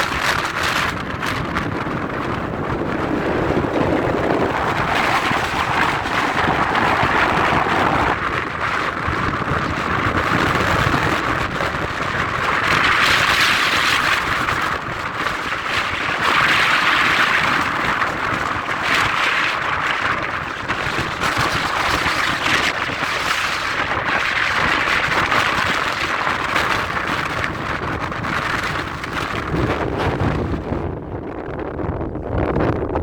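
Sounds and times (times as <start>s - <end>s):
jet engine rushing: 0.0s - 33.0s.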